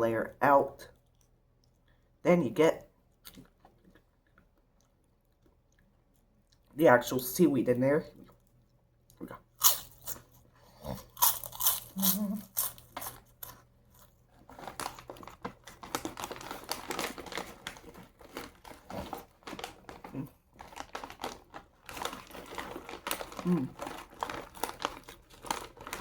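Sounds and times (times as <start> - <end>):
crunchy chewing: 8.2 - 26.0
crinkling: 11.1 - 26.0.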